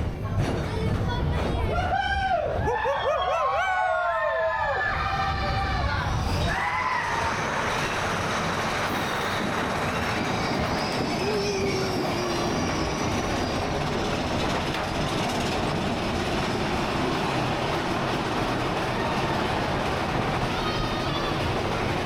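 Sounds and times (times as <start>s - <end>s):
roller coaster wheels rattling: 0.0s - 22.0s
faint squeals: 8.8s - 13.9s.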